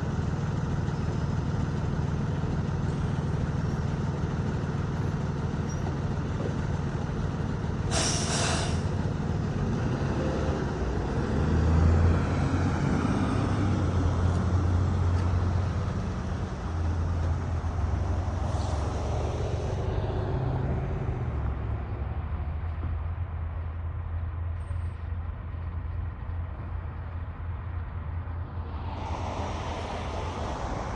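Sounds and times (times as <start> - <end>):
vehicle engine rumbling: 0.0 - 30.9
short sharp hiss: 7.9 - 8.9.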